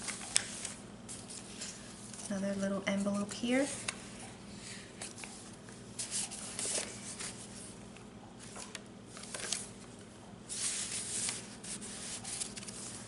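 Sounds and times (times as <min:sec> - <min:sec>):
paper rustling: 0:00.0 - 0:04.0, 0:04.7 - 0:07.8, 0:08.4 - 0:13.0.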